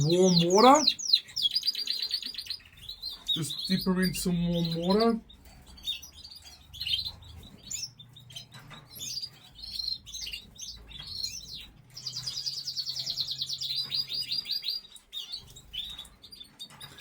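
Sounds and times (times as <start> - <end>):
canaries singing: 0.0 - 17.0.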